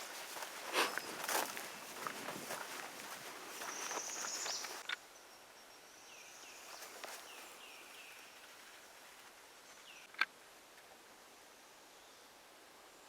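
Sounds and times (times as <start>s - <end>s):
bird chirps: 3.3s - 8.8s.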